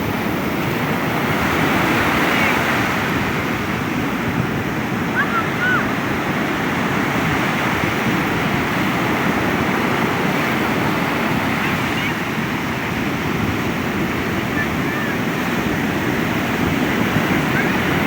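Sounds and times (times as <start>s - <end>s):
sea surf washing in: 0.0s - 18.0s.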